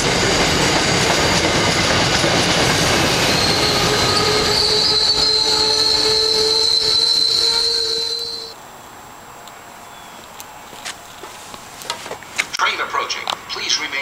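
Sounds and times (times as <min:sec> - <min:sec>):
train passing at speed: 0:00.0 - 0:14.0
high-pitched rail squeal: 0:01.6 - 0:08.6.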